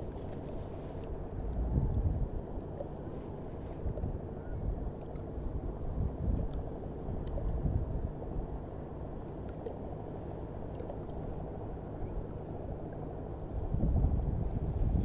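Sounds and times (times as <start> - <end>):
water rumble: 0.0 - 15.0
wind noise: 13.6 - 15.0.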